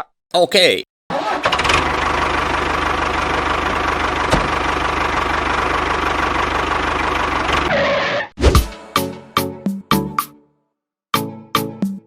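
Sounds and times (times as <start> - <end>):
small engine idling with knocking: 1.5 - 7.7.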